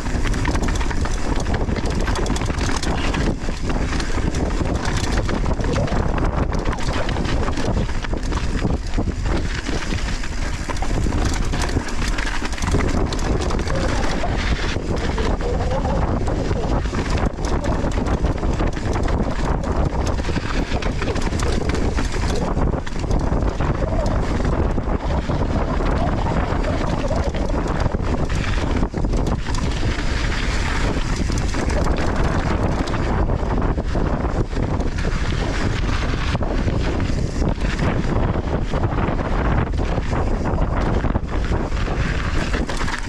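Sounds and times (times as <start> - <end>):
bike knocks and rattles: 0.0 - 43.0
tyres rumbling on loose soil: 0.0 - 43.0
wind buffeting microphone: 0.0 - 43.0.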